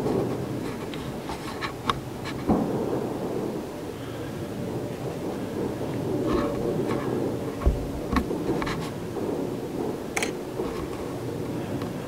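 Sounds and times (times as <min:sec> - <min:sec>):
distant fireworks cracking: 0:00.0 - 0:12.0
low background noise: 0:00.0 - 0:12.0.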